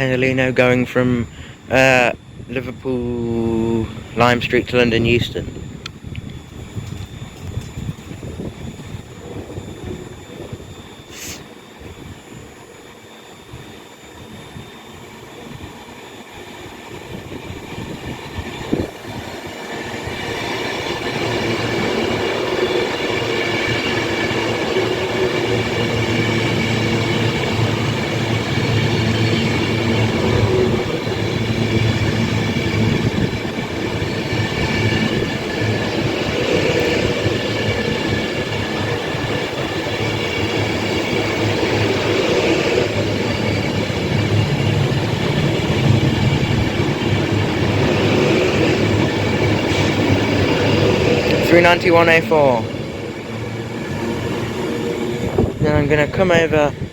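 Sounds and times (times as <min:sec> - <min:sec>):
electric train passing: 0:00.0 - 0:56.9
high-pitched whining tones: 0:00.0 - 0:56.9
wheel squeal: 0:17.8 - 0:55.7.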